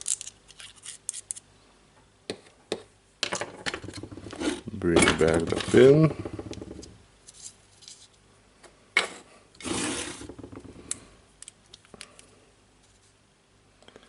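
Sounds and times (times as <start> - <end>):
small metal parts clicking: 0.0 - 1.4
metal parts scraping: 9.6 - 10.3.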